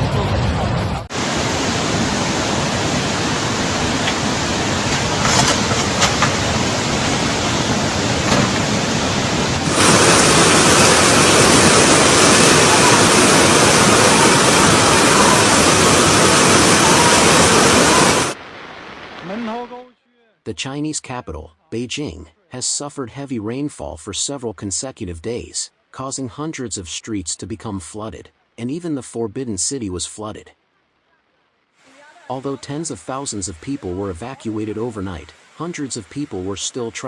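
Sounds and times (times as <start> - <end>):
floodwater rushing: 1.1 - 19.8.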